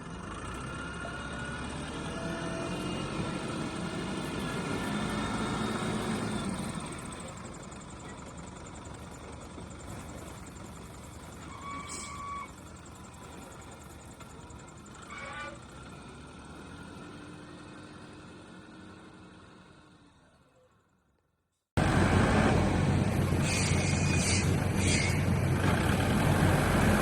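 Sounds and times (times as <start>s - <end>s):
motor vehicle passing: 21.8s - 27.0s.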